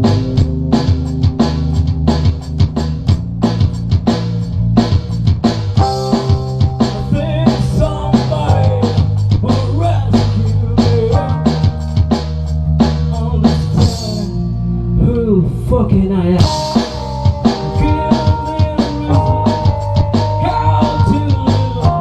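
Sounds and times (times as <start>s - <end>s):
drum kit beat: 0.0s - 14.5s, 15.9s - 22.0s
live rock band playing: 0.0s - 14.8s, 16.4s - 22.0s
wavering melodic line: 16.5s - 22.0s.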